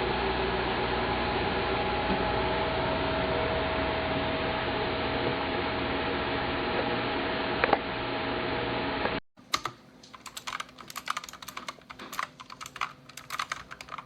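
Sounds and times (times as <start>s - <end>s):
fast typing on mechanical keyboard: 9.5s - 14.0s.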